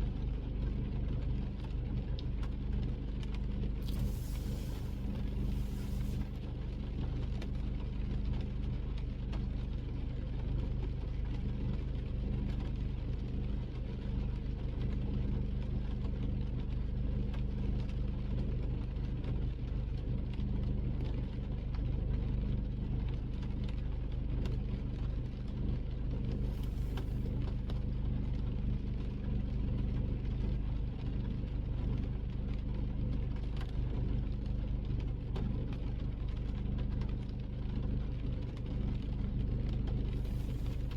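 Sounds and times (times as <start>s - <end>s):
brief hiss: 3.8s - 6.3s
engine and road rumble: 3.8s - 6.4s, 26.4s - 27.3s, 40.1s - 40.9s.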